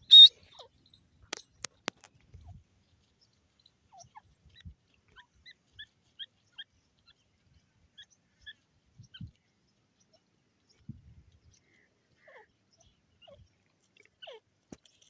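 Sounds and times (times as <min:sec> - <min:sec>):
short bird chirps: 0:00.0 - 0:01.0.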